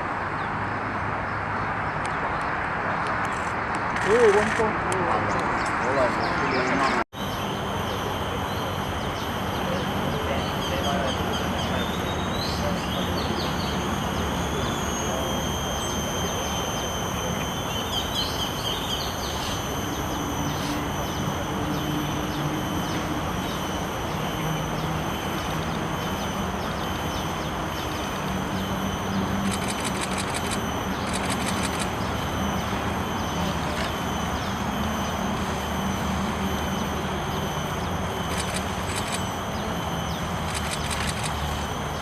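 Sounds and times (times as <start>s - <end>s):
steady outdoor noise: 0.0s - 42.0s
bird chirps: 15.7s - 35.2s
quick runs of ticks: 29.4s - 31.9s, 38.3s - 39.2s, 40.5s - 41.4s.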